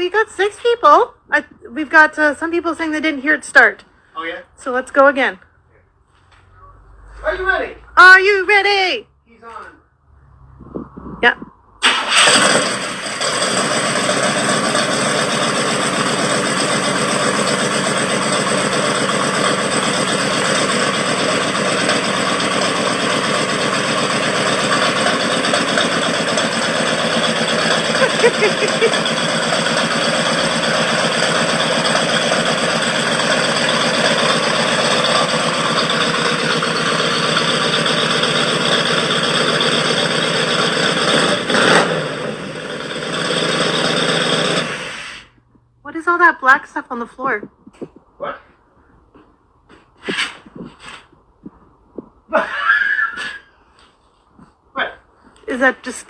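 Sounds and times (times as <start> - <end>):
car engine idling: 11.8 - 45.1.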